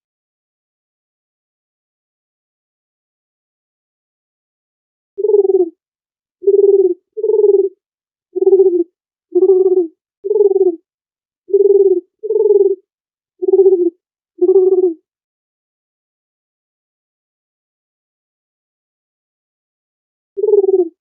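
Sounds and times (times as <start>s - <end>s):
dove cooing: 5.2s - 5.8s, 6.4s - 7.8s, 8.4s - 10.8s, 11.5s - 12.8s, 13.4s - 15.0s, 20.4s - 21.0s.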